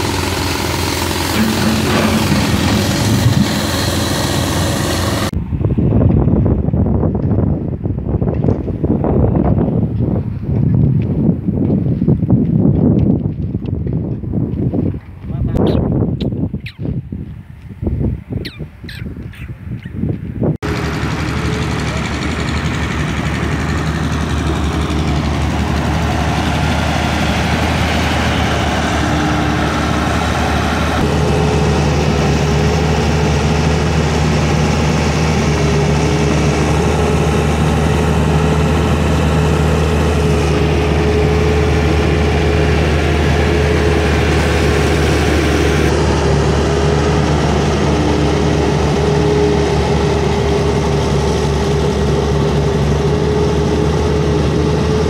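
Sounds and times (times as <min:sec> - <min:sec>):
diesel engine running: 0:00.0 - 0:06.0, 0:20.6 - 0:55.0.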